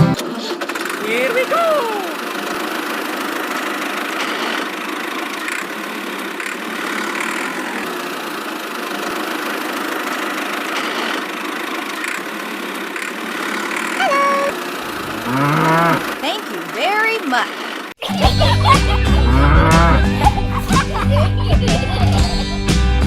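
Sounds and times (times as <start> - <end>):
small motor whirring: 2.2 - 16.7.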